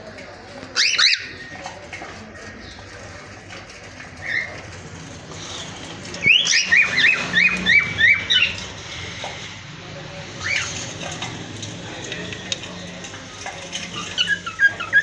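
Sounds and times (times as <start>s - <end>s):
cockatiels whistled calls: 0.8s - 1.6s, 6.2s - 8.6s.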